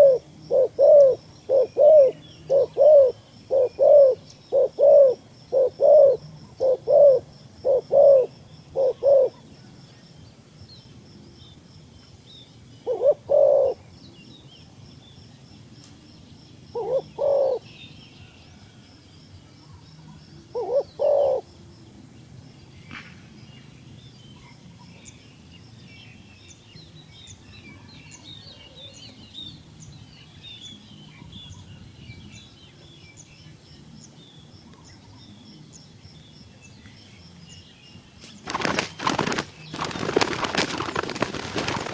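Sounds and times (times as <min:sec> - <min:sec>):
dove cooing: 0:00.0 - 0:09.5, 0:12.8 - 0:13.9, 0:16.7 - 0:17.7, 0:20.4 - 0:21.6, 0:38.4 - 0:41.9
small birds chirping: 0:22.4 - 0:41.9.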